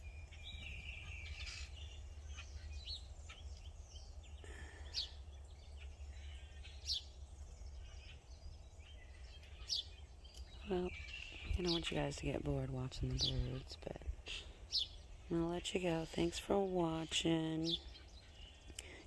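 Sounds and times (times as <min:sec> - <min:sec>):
sharp high bird calls: 0:00.0 - 0:12.1
birds chirping and calling: 0:00.0 - 0:19.0
low outdoor rumble: 0:00.0 - 0:19.0.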